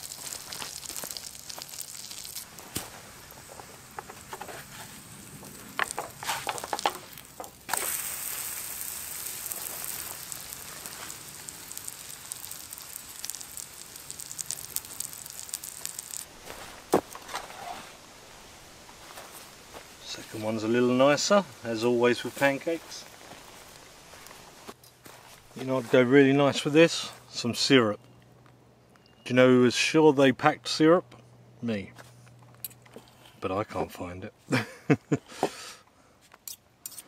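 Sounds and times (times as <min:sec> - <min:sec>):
batter sizzling in a pan: 0:00.0 - 0:16.7
grease crackling and popping: 0:00.0 - 0:20.2.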